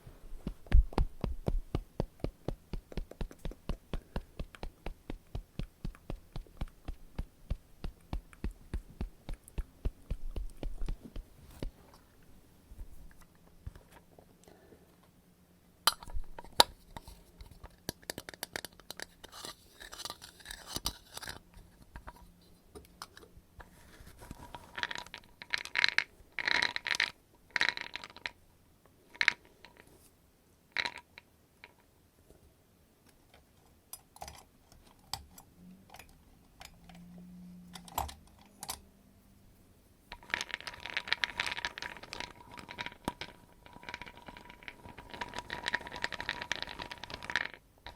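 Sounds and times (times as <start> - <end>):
scratchy rustles: 0.0 - 11.9
taps and clicks: 0.4 - 11.8.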